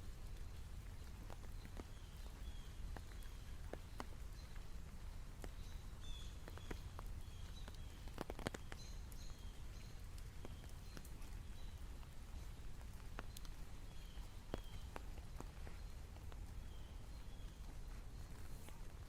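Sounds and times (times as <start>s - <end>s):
raindrops ticking: 0.0s - 19.0s.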